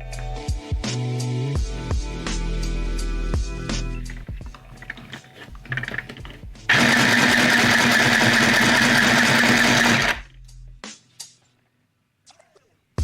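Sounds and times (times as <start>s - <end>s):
sewing machine motor buzzing: 4.8s - 10.2s.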